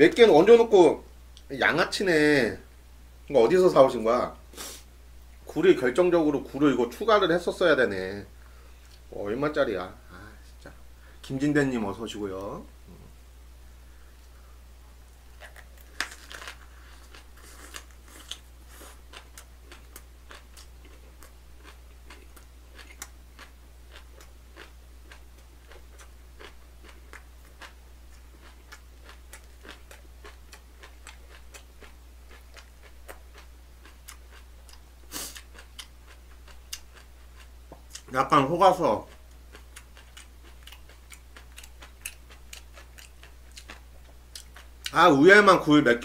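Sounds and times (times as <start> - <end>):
low steady hum: 0.0 - 46.0
crunchy chewing and mouth clicks: 15.1 - 38.2, 38.8 - 45.0.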